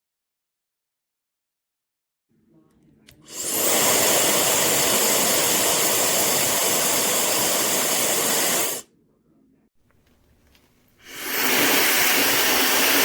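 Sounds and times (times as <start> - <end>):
hair dryer blowing with high whine: 3.3 - 8.8, 11.1 - 13.0.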